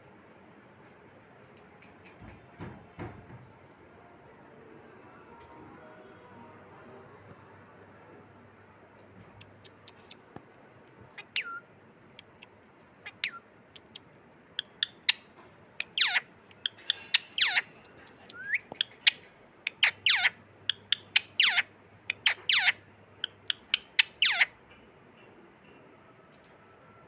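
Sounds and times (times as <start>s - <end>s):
parrot squawking: 11.1s - 11.6s, 12.2s - 14.0s, 14.6s - 24.6s.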